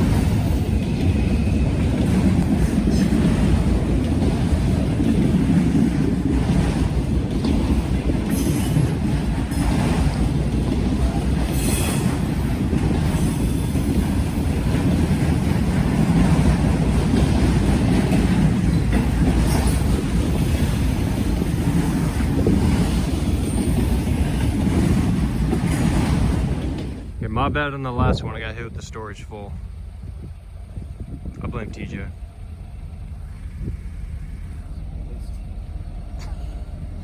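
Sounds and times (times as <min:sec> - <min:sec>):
train wheels rumbling on rail: 0:00.0 - 0:37.0
high wheel squeals: 0:11.5 - 0:14.4.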